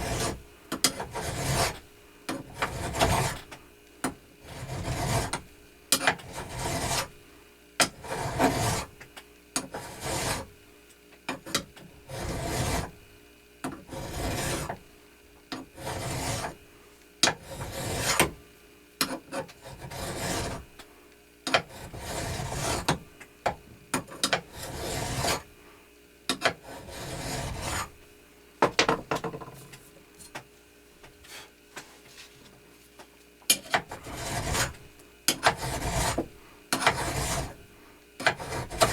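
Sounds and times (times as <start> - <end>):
file strokes on metal: 0.0 - 3.5, 4.4 - 5.4, 6.0 - 7.2, 7.8 - 8.9, 9.6 - 10.5, 12.0 - 13.0, 13.9 - 14.8, 15.6 - 16.6, 17.2 - 18.4, 19.0 - 20.7, 21.5 - 23.0, 24.3 - 25.5, 26.4 - 28.0, 33.5 - 37.6, 38.2 - 38.9.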